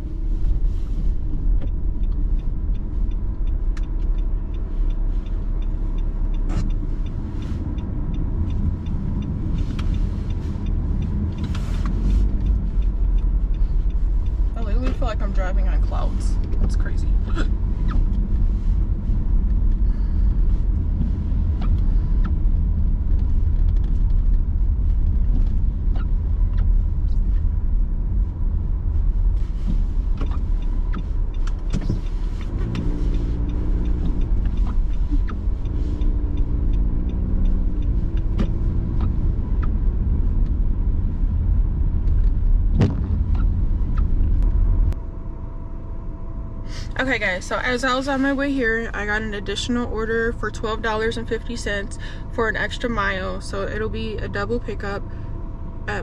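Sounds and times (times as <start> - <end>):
car tyres and engine rumble: 0.0 - 56.0.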